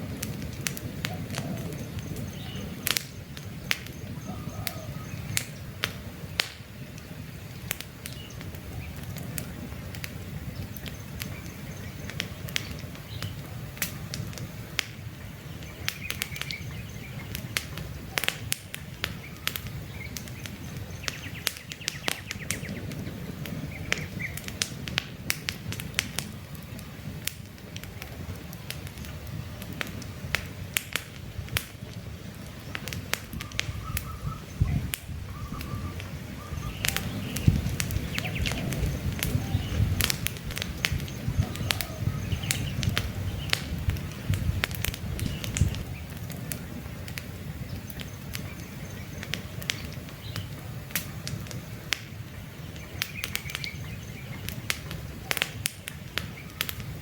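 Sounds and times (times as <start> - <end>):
campfire crackling and popping: 0.0 - 57.0
low rumble of flames: 0.0 - 57.0
faint bird chirps: 1.1 - 5.8, 33.4 - 40.0, 40.9 - 43.6.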